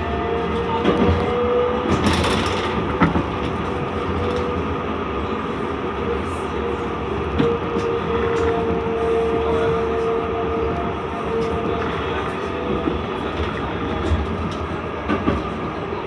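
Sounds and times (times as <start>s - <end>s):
tram wheels rumbling on rail: 0.0s - 16.0s.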